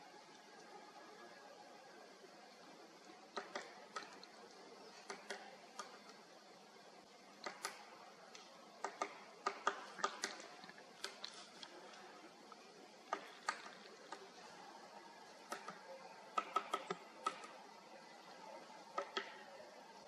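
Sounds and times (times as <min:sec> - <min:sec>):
woodpecker pecking at wood: 0:08.8 - 0:11.7.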